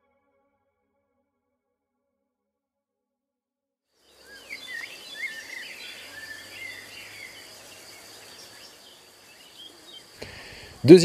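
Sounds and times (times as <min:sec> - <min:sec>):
birds chirping: 0:04.1 - 0:11.0.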